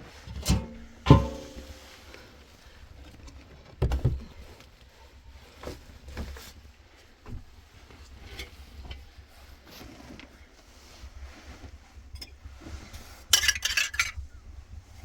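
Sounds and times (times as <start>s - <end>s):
knocks and thumps: 0.4s - 1.8s.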